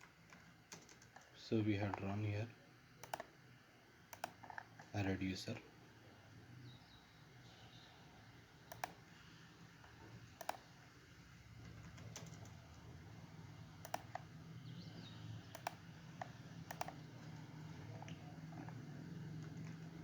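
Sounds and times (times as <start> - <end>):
keyboard and mouse clicks: 0.0 - 2.1, 3.0 - 3.4, 4.1 - 4.9, 8.7 - 9.0, 9.8 - 10.8, 11.6 - 12.9, 13.8 - 14.3, 15.5 - 20.0
faint low hum: 0.0 - 20.0.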